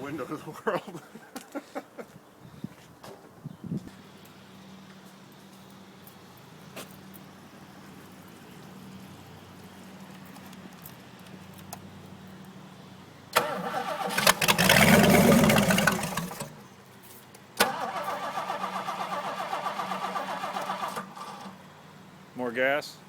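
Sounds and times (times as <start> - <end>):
starter motor cranking engine: 13.3 - 16.6, 17.6 - 21.6.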